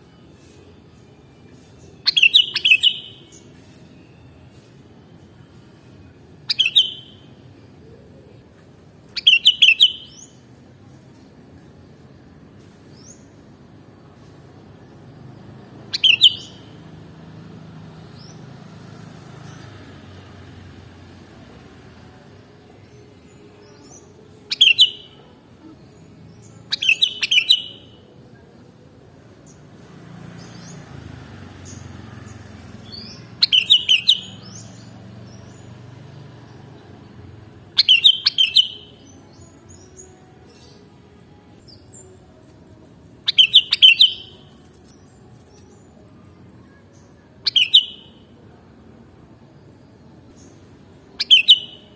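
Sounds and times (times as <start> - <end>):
bird chirping bright bursts: 1.7 - 3.9, 6.5 - 7.4, 9.1 - 10.4, 15.7 - 16.8, 22.8 - 25.4, 26.4 - 28.1, 29.4 - 37.1, 37.7 - 42.4, 43.2 - 46.0, 46.6 - 48.4, 50.3 - 51.9.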